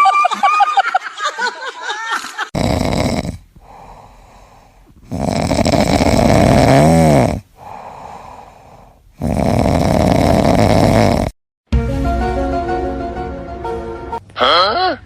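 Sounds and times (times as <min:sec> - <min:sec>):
loud rasping snoring: 0:02.5 - 0:11.4.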